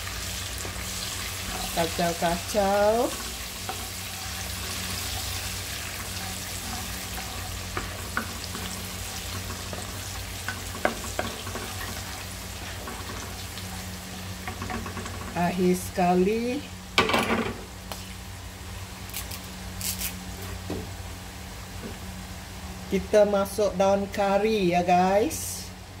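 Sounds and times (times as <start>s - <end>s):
garlic and chillies sizzling: 0.0s - 17.0s, 17.6s - 25.7s
wooden spatula stirring: 0.6s - 13.6s.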